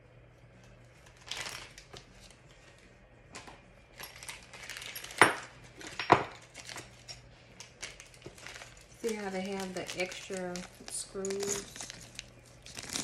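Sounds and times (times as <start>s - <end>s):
metal parts clinking: 9.9s - 12.2s.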